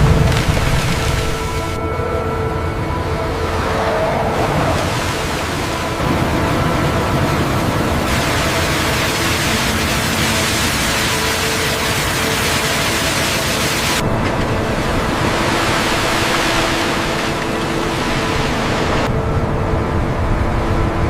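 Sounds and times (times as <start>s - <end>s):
low machinery hum: 0.0s - 21.0s
high-pressure water jets spraying: 7.8s - 14.0s.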